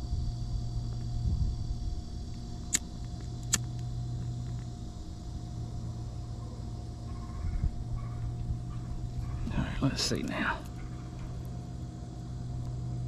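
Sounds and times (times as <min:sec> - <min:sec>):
wind rumbling on microphone: 0:00.0 - 0:03.5, 0:07.2 - 0:09.8
steady low hum: 0:00.0 - 0:13.0.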